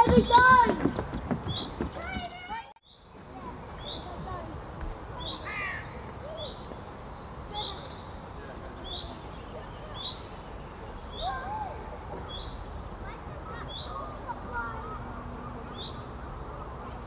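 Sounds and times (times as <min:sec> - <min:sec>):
faint background birdsong: 0:00.0 - 0:17.0
songbird high rising call: 0:05.1 - 0:08.2, 0:08.8 - 0:12.8.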